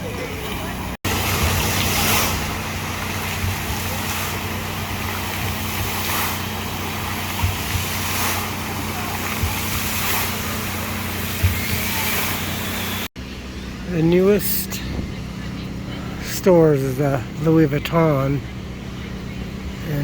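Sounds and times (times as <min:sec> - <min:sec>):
steady rushing noise: 0:00.0 - 0:13.1
constant low hum: 0:00.0 - 0:20.0.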